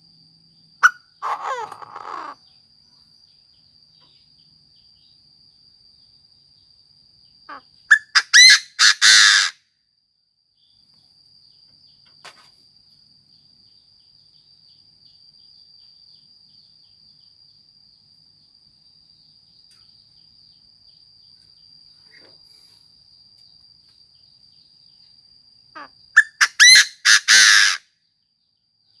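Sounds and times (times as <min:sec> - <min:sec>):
bird calling with harsh notes: 0:00.8 - 0:02.6, 0:07.5 - 0:09.6, 0:25.8 - 0:27.8.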